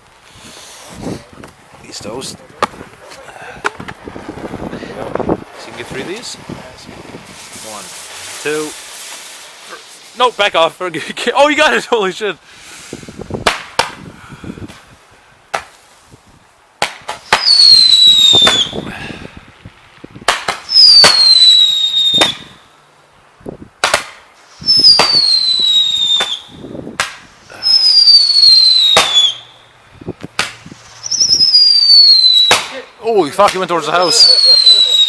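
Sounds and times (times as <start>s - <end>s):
firework cracks and pops: 0.0s - 11.1s, 13.0s - 22.6s, 23.4s - 29.5s, 30.2s - 35.0s
firework falling whistles: 7.2s - 10.3s, 16.9s - 18.9s, 20.2s - 22.6s, 23.8s - 32.8s, 33.9s - 35.0s.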